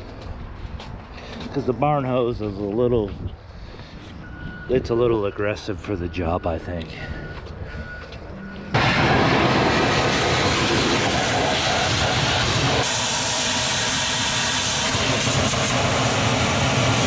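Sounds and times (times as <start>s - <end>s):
pressure washer spray hissing: 8.8s - 17.0s.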